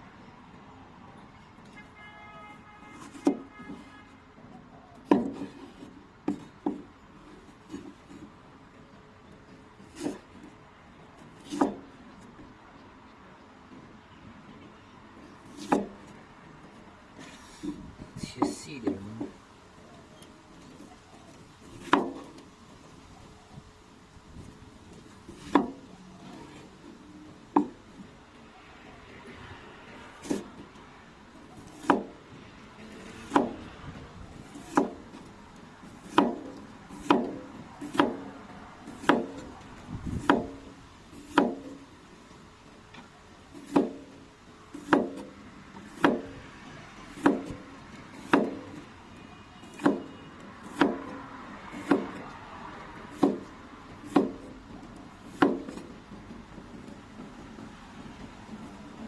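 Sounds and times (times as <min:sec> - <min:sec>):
knife chopping on cutting board: 0:31.7 - 0:32.1, 0:34.5 - 0:35.0, 0:36.0 - 0:38.3, 0:38.9 - 0:39.5, 0:40.2 - 0:40.6, 0:41.2 - 0:41.7, 0:43.6 - 0:44.0, 0:44.8 - 0:45.2, 0:48.2 - 0:48.6, 0:49.6 - 0:51.1, 0:51.7 - 0:52.2, 0:53.1 - 0:54.5, 0:55.3 - 0:55.9.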